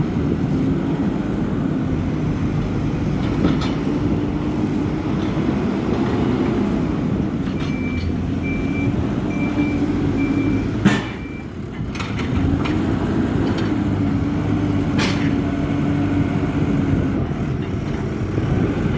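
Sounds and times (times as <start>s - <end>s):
diesel engine running: 0.0s - 18.9s
reversing alarm beeping: 7.6s - 11.5s.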